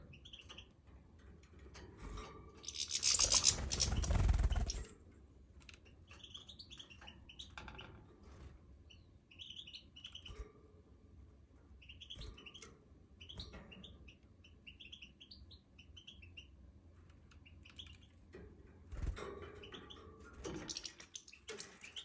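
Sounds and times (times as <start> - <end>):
goldfinches twittering: 2.6 - 4.8, 20.5 - 22.0.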